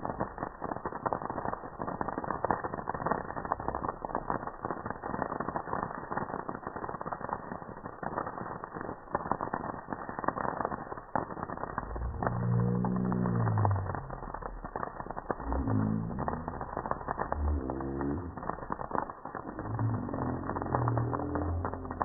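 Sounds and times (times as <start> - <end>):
campfire crackling: 0.0 - 22.0
low pitched tone: 11.7 - 22.0.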